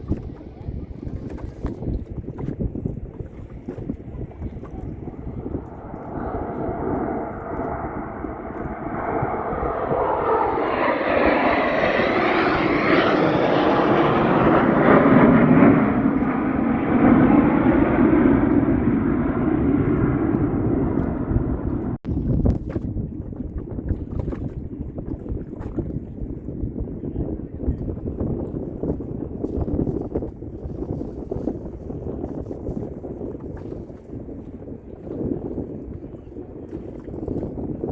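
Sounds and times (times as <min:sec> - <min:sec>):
aircraft passing by: 0:03.3 - 0:22.0.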